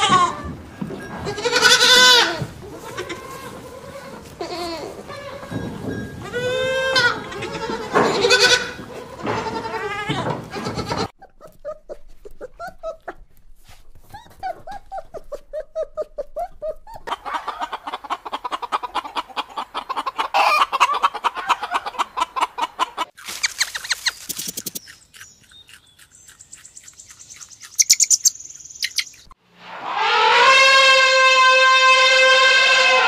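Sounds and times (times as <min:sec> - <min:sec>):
hens clucking: 0:00.0 - 0:29.4
sheep bleating: 0:01.3 - 0:05.6
small dog whining: 0:14.0 - 0:17.1.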